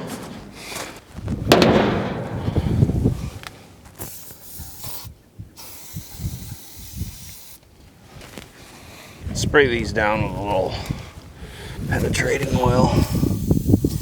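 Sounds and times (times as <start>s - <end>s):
tools thumping and rattling: 0.0s - 0.9s, 1.5s - 3.2s.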